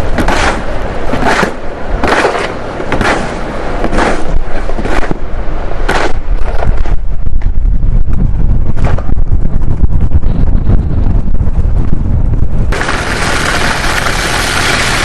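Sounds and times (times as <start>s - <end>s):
snow shovel scraping: 0.0s - 5.2s, 12.8s - 15.0s
low rumble: 6.1s - 15.0s.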